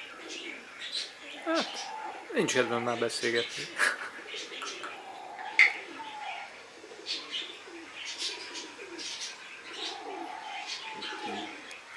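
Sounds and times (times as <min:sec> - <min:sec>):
low cooing calls: 0:00.0 - 0:11.9.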